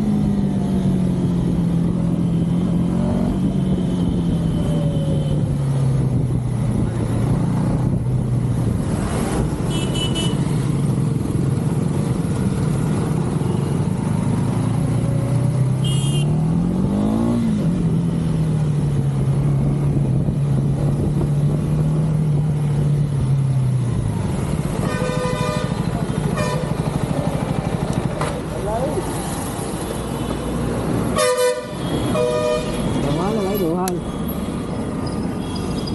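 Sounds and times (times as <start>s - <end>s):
vehicle horns tooting: 9.7s - 10.5s, 15.8s - 16.4s, 24.8s - 26.8s, 31.1s - 34.4s
motorcycle engine running: 23.9s - 29.4s.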